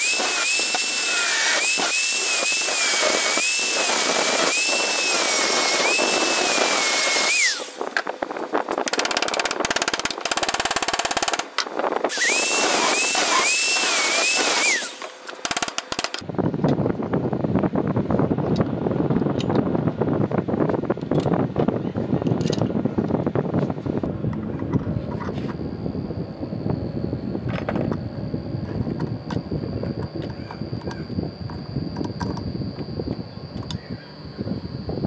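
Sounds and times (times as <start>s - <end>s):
power tool motor whining: 0.0s - 8.2s, 8.8s - 16.2s.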